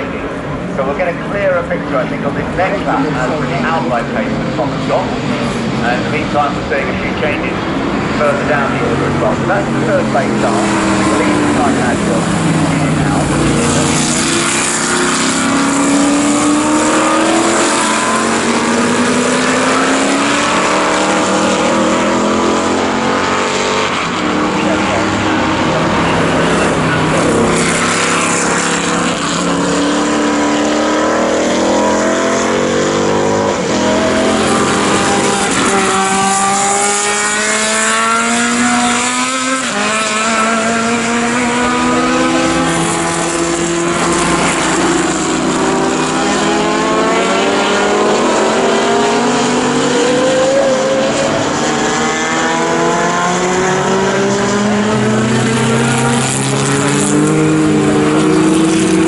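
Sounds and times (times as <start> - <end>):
racing car engines accelerating: 0.0 - 59.0.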